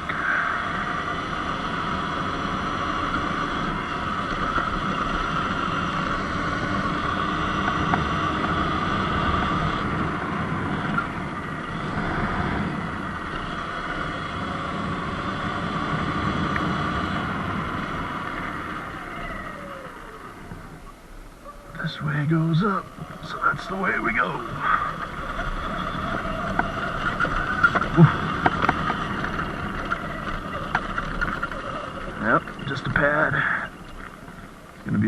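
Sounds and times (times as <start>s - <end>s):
electric motor whine: 0.0s - 35.0s
tyre noise: 17.3s - 35.0s.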